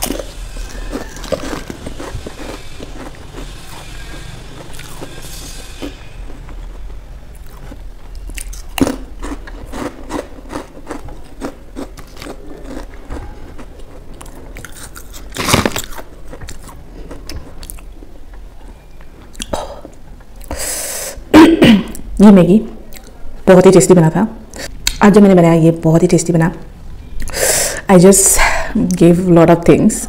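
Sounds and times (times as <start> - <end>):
crunching and chewing chips: 0.0 - 20.5.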